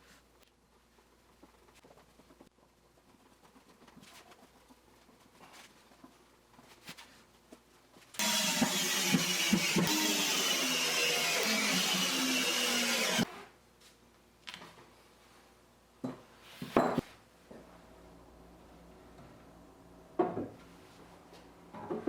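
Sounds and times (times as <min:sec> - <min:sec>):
electric power tool running: 0:08.2 - 0:13.3.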